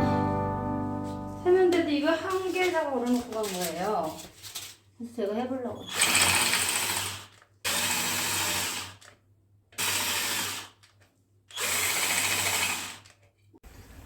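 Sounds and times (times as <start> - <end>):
power drill bursts: 5.8 - 9.1, 9.8 - 10.8, 11.5 - 13.1.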